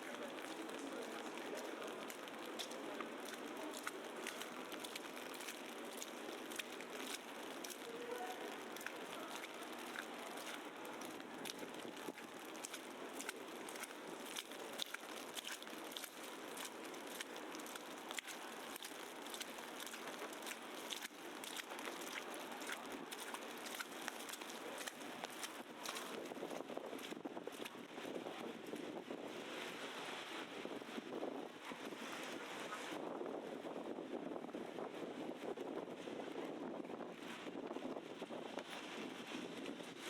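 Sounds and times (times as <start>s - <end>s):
crackling and ticking of snow: 0.0s - 28.2s.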